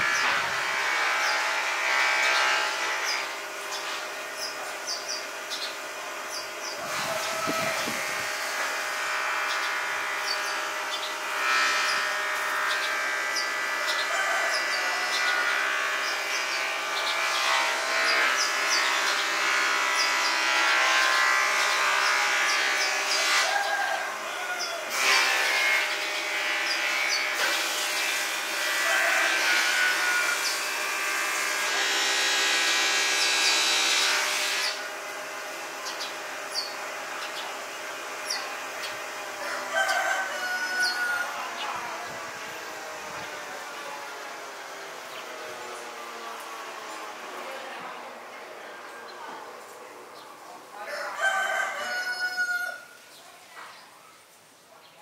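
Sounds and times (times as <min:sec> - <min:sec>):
steady mechanical hum: 0:00.0 - 0:55.0
small birds chirping: 0:03.0 - 0:08.0, 0:09.4 - 0:20.4, 0:35.7 - 0:39.2.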